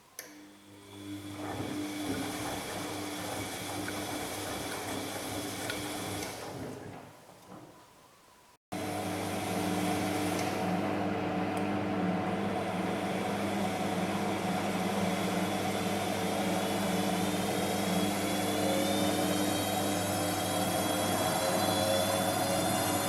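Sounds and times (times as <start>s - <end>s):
washing machine spin whine: 0.4s - 7.8s, 8.8s - 23.0s
washing machine running: 0.6s - 7.8s, 8.8s - 23.0s.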